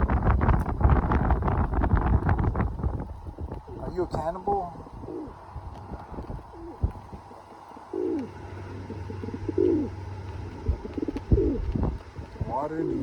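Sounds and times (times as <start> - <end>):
bird cooing: 3.2 - 13.0.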